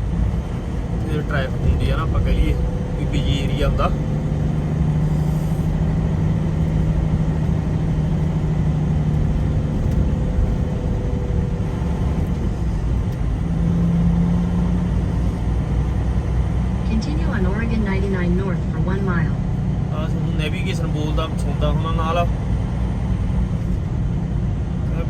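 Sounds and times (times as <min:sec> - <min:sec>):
road noise inside truck cab: 0:00.0 - 0:25.0
truck engine hum: 0:00.0 - 0:25.0.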